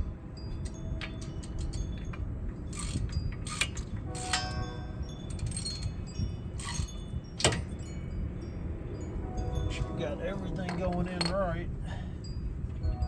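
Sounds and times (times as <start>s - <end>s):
metal tools clinking: 9.8s - 11.6s.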